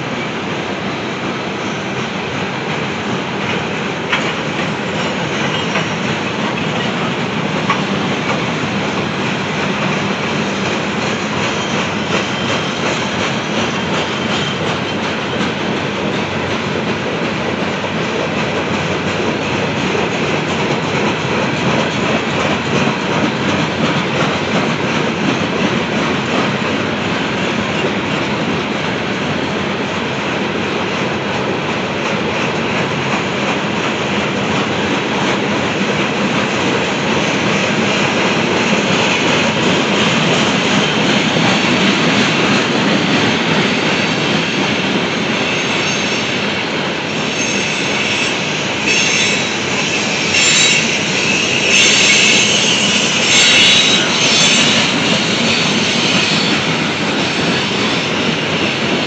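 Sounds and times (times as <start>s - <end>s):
freight cars rumbling on rails: 0.0s - 59.0s
high-pitched wheel squeal: 47.1s - 56.7s.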